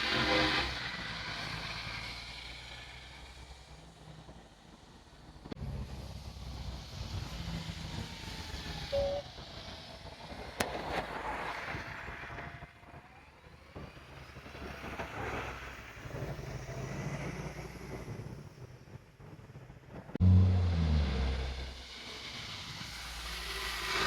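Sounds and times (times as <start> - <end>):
vehicle engines running: 13.8 - 24.0.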